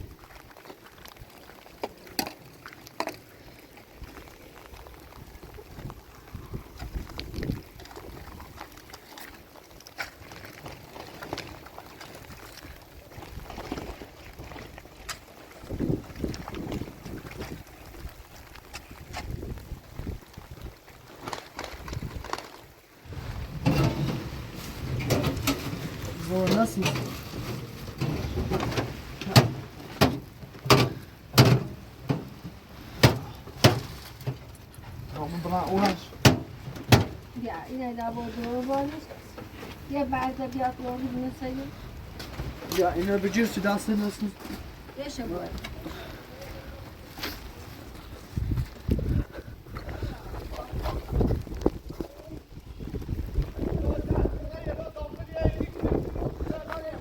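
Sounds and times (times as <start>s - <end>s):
wind buffeting microphone: 4.0s - 8.8s, 11.8s - 20.9s, 23.0s - 29.4s, 44.6s - 57.0s.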